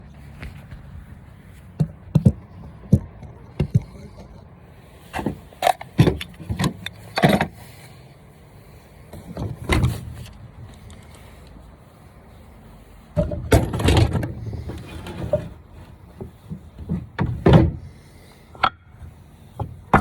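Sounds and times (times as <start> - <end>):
objects knocking and clunking: 1.7 - 4.5, 5.1 - 7.6, 9.1 - 10.4, 13.2 - 18.0, 18.6 - 20.0.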